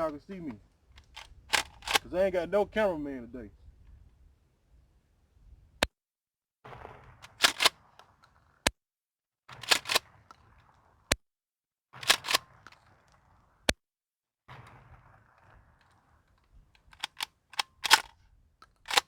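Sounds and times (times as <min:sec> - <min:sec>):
shotgun action clacking: 0:01.0 - 0:02.2, 0:07.3 - 0:07.9, 0:09.6 - 0:10.1, 0:12.0 - 0:12.9, 0:16.8 - 0:19.0
shotgun shots: 0:06.7 - 0:08.2, 0:09.5 - 0:10.7, 0:12.0 - 0:13.1, 0:14.5 - 0:18.2.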